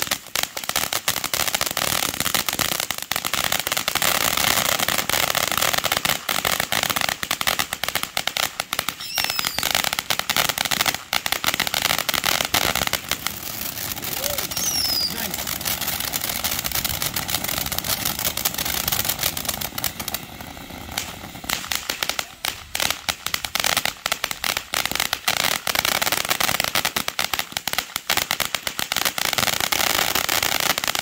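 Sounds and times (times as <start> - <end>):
sharp crackles of fireworks: 0.0 - 31.0
fireworks hissing: 8.8 - 25.2.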